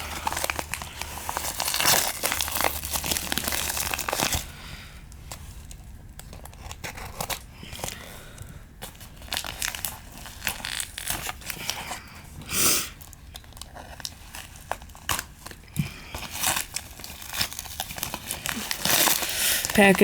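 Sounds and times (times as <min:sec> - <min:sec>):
packaging ripping: 0:00.0 - 0:04.6, 0:05.7 - 0:08.1, 0:08.8 - 0:12.0, 0:12.9 - 0:20.0
plastic wrap crinkling: 0:00.0 - 0:20.0.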